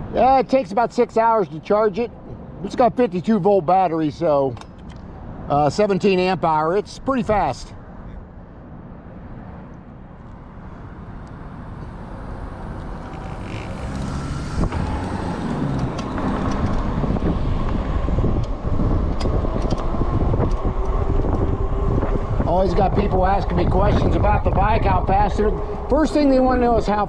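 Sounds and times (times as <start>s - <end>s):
rumbling road noise: 0.0s - 27.0s
wind buffeting microphone: 10.0s - 27.0s.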